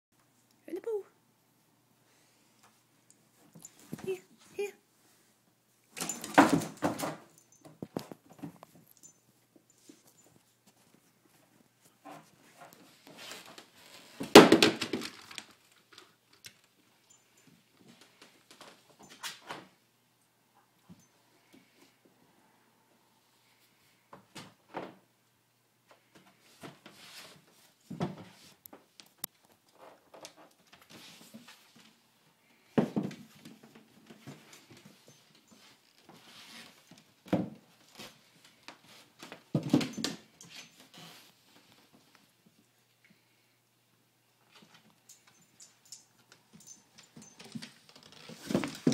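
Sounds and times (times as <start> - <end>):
puppy scuffling and clattering: 44.4 - 48.9.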